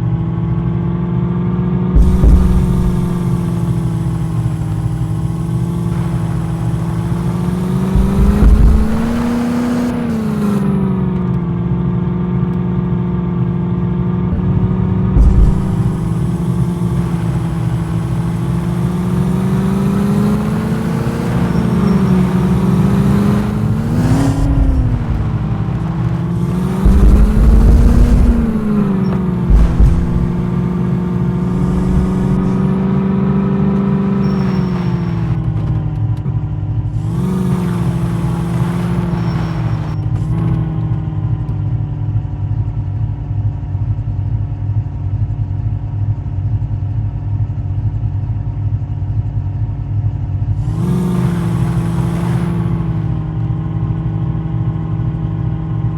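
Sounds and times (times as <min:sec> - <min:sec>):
engine revving: 0:01.8 - 0:12.5, 0:14.1 - 0:41.6, 0:50.5 - 0:53.8
heavy low thumps: 0:02.0 - 0:11.5, 0:14.3 - 0:19.4, 0:22.3 - 0:33.5.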